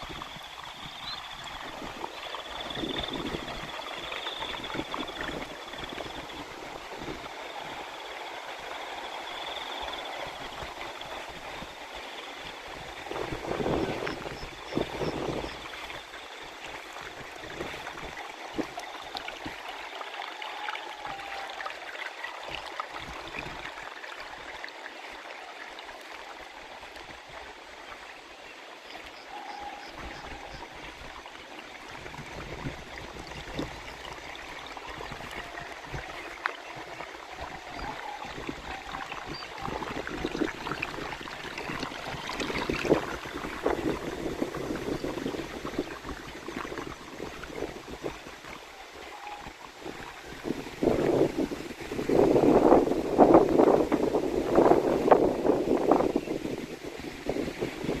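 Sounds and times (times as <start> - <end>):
water flowing and trickling: 0.0 - 58.0
faint bird calls: 29.0 - 30.8.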